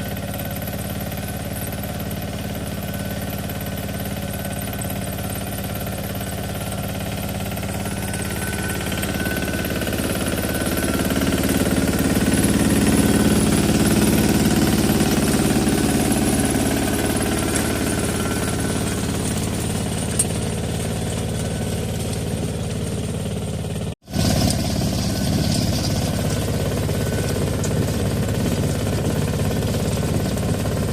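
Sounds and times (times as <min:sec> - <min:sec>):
tractor diesel engine under load: 0:00.0 - 0:30.9.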